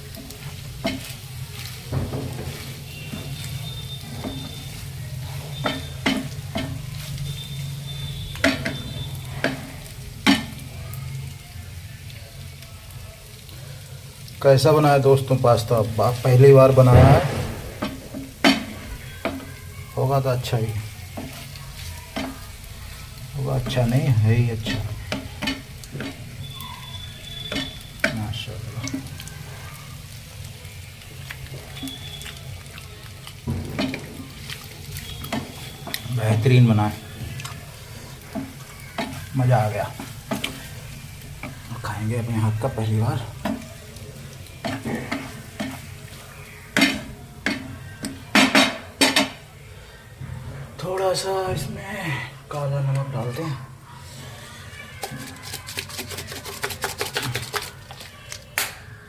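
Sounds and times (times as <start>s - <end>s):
pasta frying in a pan: 0.0s - 59.0s
spoon knocking against pan: 5.6s - 6.8s, 8.4s - 8.8s, 9.4s - 10.6s, 17.8s - 19.5s, 24.6s - 26.2s, 46.8s - 49.4s
utensil clicking against pan: 24.6s - 26.2s, 38.3s - 39.3s, 39.9s - 40.7s, 43.4s - 43.7s, 46.8s - 49.4s, 55.0s - 58.8s.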